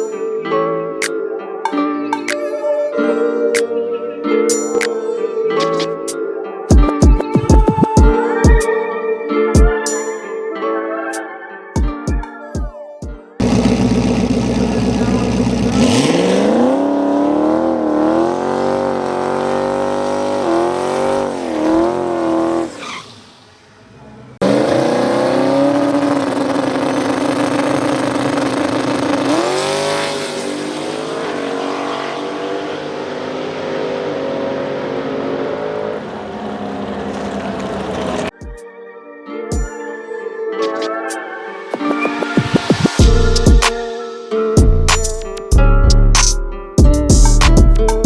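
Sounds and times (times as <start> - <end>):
drag race car engine accelerating: 13.4 - 38.3.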